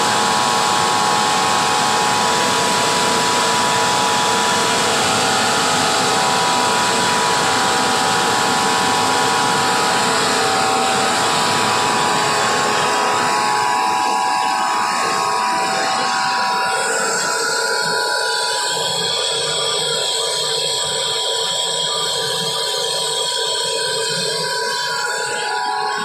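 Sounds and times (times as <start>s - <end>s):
air compressor running: 0.0s - 17.3s
steady whining tones: 0.0s - 20.6s.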